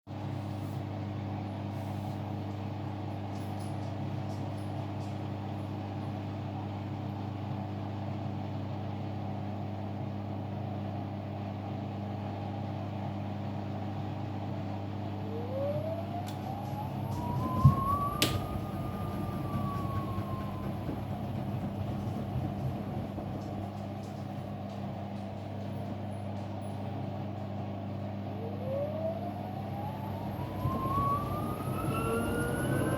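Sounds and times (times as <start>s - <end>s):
washing machine motor hum: 0.1s - 32.9s
rising spin whine: 15.2s - 23.8s, 28.3s - 32.9s.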